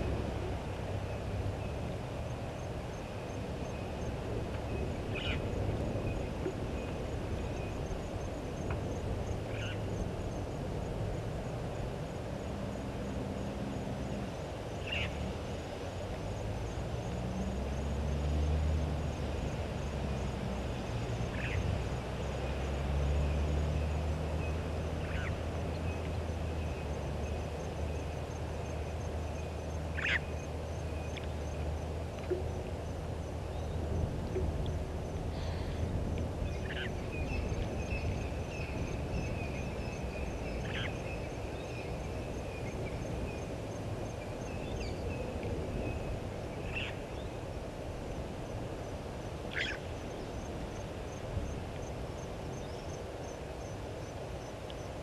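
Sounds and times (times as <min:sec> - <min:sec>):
sharp bird calls: 0:29.9 - 0:30.4, 0:49.5 - 0:49.9
low rumble: 0:30.9 - 0:39.5.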